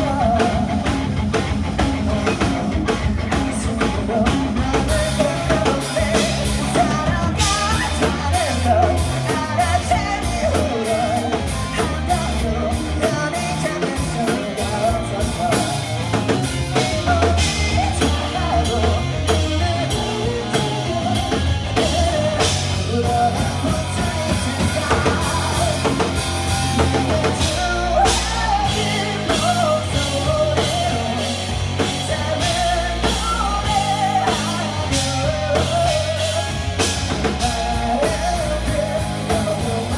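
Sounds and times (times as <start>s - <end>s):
driving drum kit: 0.0s - 39.9s
person singing: 0.0s - 39.9s
rock band playing live: 0.0s - 39.9s.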